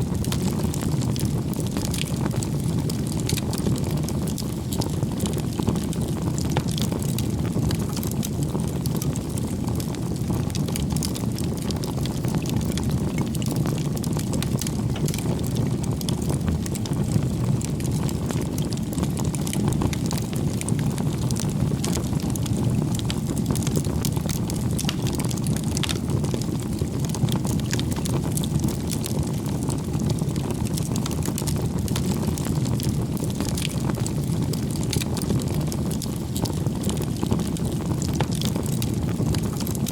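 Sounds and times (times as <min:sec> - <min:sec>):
fire crackling and popping: 0:00.0 - 0:39.9
flames rumbling: 0:00.0 - 0:39.9.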